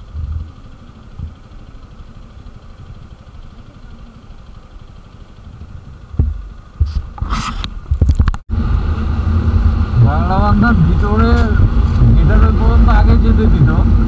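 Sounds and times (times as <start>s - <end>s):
motorcycle engine idling: 0.0s - 7.2s
loud thump: 6.2s - 7.4s.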